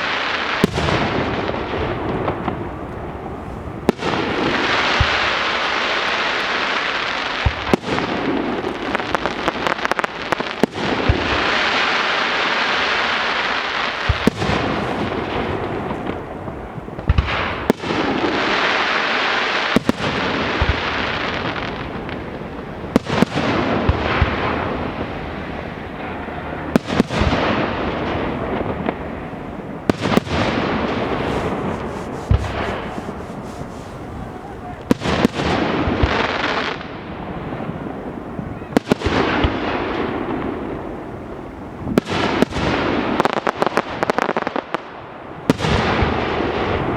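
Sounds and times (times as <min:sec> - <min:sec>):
fireworks crackling: 0:00.0 - 0:46.9
firework shells banging: 0:29.8 - 0:36.2.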